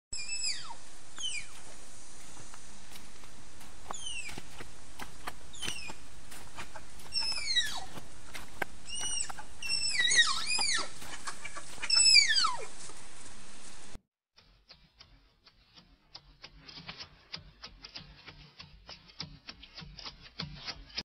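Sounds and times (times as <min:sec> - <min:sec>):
high whistled animal calls: 0:00.2 - 0:01.7, 0:03.9 - 0:04.5, 0:05.5 - 0:06.0, 0:07.0 - 0:08.0, 0:08.8 - 0:12.8
steady hiss: 0:00.2 - 0:14.0.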